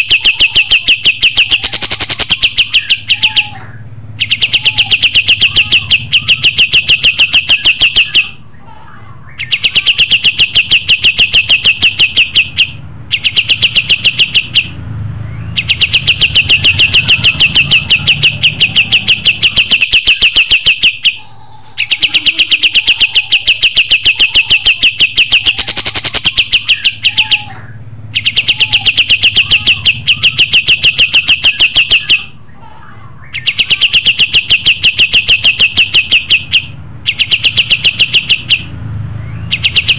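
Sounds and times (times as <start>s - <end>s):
songbird singing fast trills: 0.1s - 3.5s, 4.2s - 8.3s, 9.4s - 21.2s, 21.8s - 27.4s, 33.3s - 39.9s.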